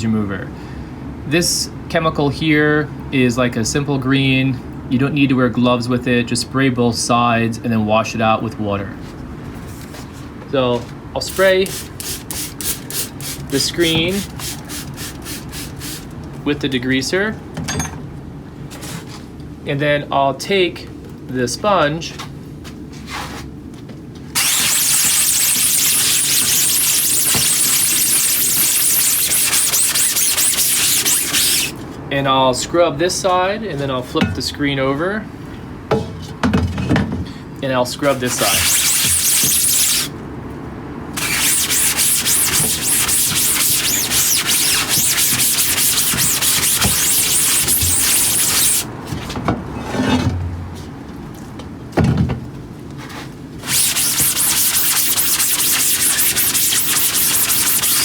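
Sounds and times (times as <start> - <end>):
brush scrubbing mesh screen: 24.4 - 31.8, 38.1 - 40.1, 41.2 - 48.9, 53.6 - 58.0.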